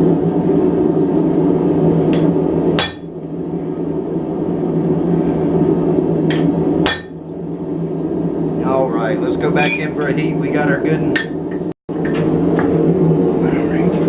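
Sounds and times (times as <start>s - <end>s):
hammer striking chisel on steel: 2.8s - 3.2s, 6.8s - 7.4s, 9.6s - 10.0s.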